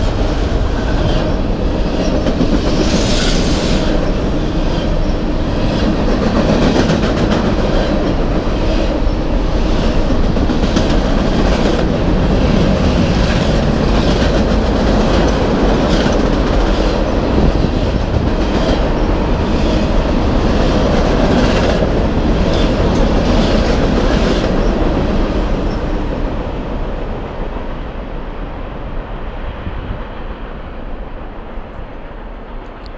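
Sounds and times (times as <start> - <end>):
train wheel clacks: 0.0 - 25.0
freight train rumbling past: 0.0 - 32.9.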